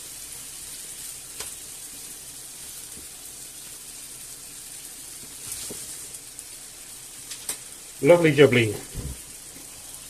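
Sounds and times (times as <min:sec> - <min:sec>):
meat sizzling in frying pan: 0:00.0 - 0:10.0.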